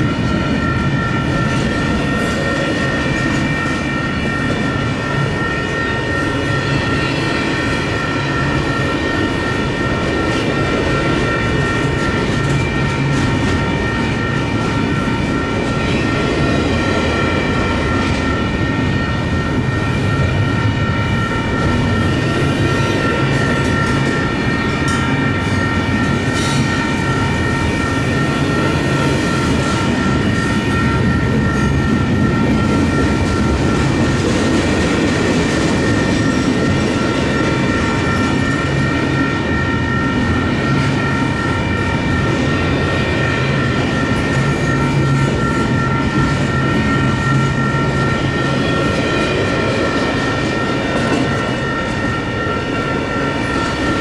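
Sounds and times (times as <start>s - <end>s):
high-pitched ringing tones: 0.0s - 54.0s
steel wheels rumbling on rail: 0.0s - 54.0s.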